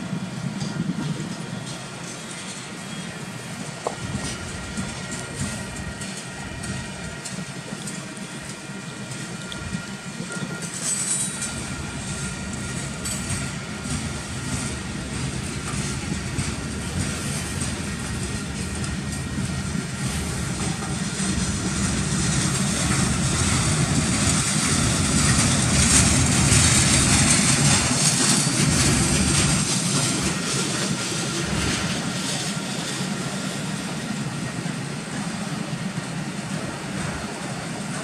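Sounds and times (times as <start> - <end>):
freight train wheels rumbling on rail: 0.0 - 38.0.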